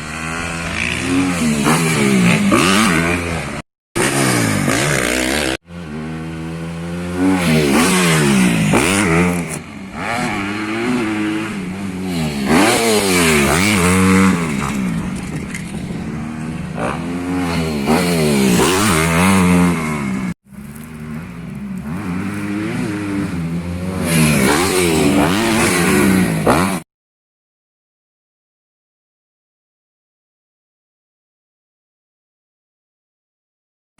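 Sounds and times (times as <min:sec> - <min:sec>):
motocross bike engine revving: 0:00.0 - 0:26.8.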